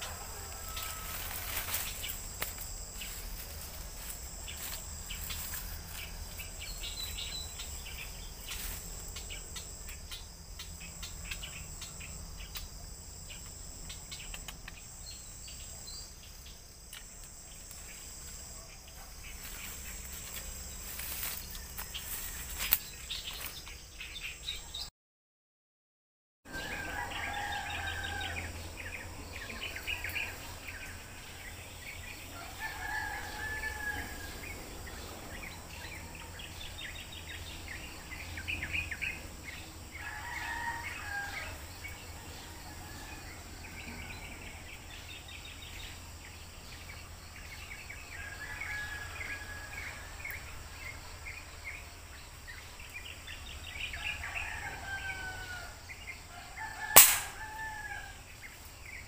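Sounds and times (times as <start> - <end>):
rooster crowing: 0.0 - 8.0, 26.5 - 36.8, 39.0 - 44.4, 48.1 - 50.4, 53.7 - 58.3.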